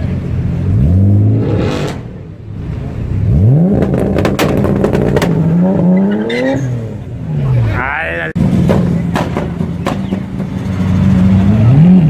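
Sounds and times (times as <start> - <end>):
sports car engine revving: 0.1 - 7.6, 8.4 - 12.0
exhaust crackling pops: 3.7 - 5.5.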